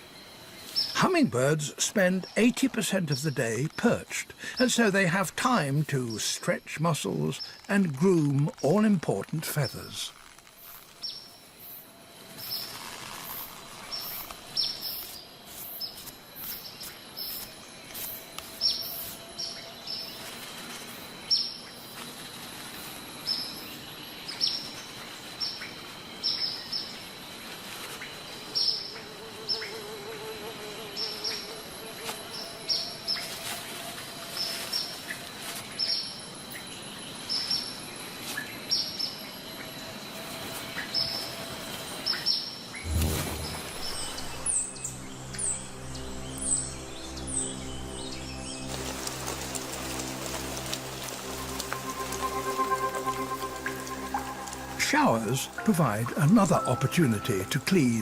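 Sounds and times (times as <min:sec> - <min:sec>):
high-pitched insect drone: 0:22.6 - 0:56.4.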